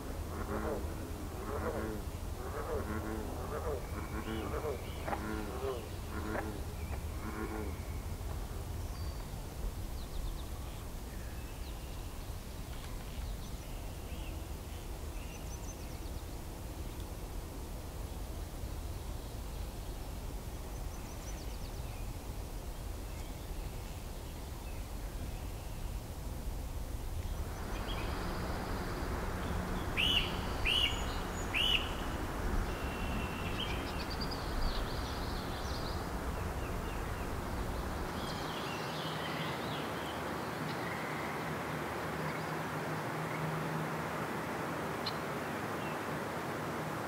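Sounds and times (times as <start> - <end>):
outdoor background hiss: 0.0 - 47.0
birds calling: 27.4 - 41.2.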